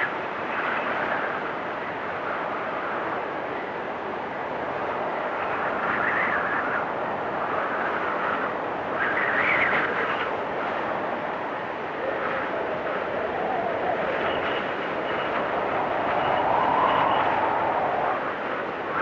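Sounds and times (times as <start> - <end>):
blizzard wind gusts: 0.0 - 19.0.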